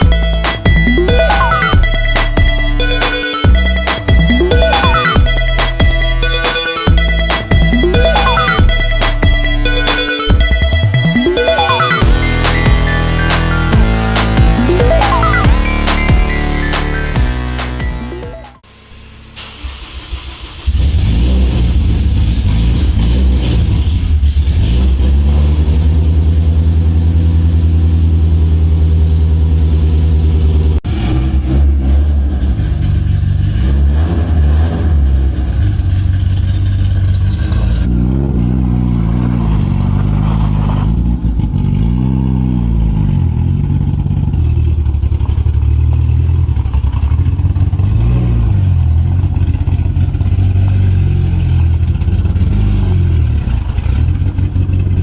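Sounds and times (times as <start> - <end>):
car engine revving: 11.3 - 18.2, 19.5 - 55.0.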